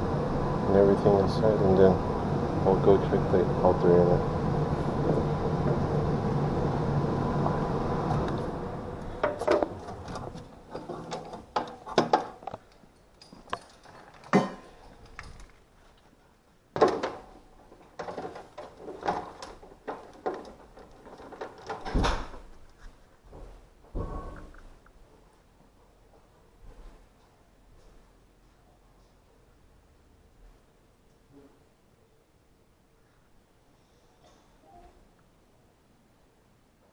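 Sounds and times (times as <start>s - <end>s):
handling knocks and rattles: 9.0s - 16.1s, 16.7s - 24.8s.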